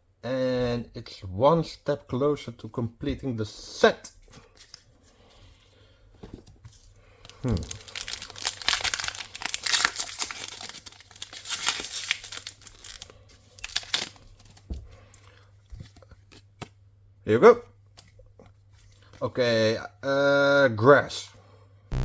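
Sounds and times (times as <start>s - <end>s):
foil wrapper crinkling and tearing: 7.1s - 14.6s.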